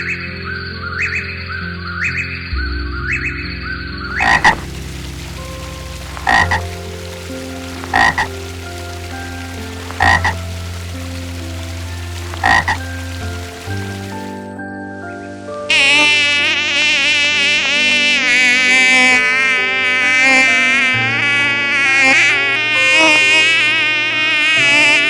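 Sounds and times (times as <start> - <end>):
frog croaking: 0.0 - 14.4.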